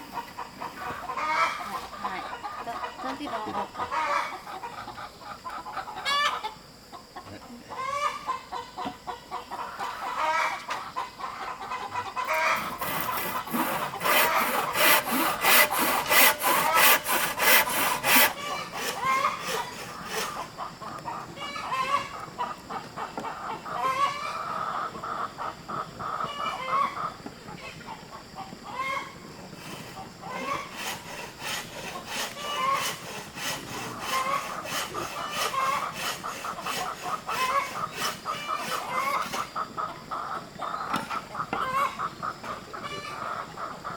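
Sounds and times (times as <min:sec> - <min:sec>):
chickens clucking: 0:00.0 - 0:43.9
rhythmic strokes on wood: 0:12.2 - 0:20.7, 0:29.6 - 0:39.5.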